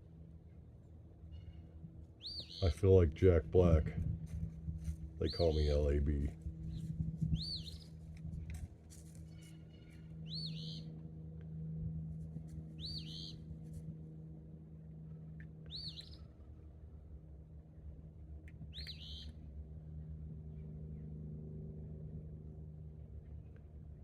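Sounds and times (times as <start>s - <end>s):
steady low hum: 0.0s - 24.0s
small songbird singing: 2.2s - 2.7s, 6.7s - 7.9s, 9.6s - 10.9s, 12.8s - 13.4s, 15.7s - 16.2s, 18.7s - 19.3s.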